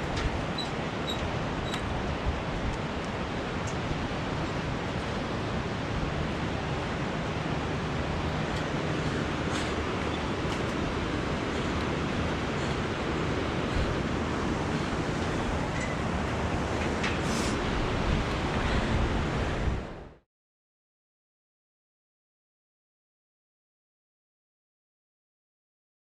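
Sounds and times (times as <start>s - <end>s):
steady rushing noise: 0.0s - 20.2s.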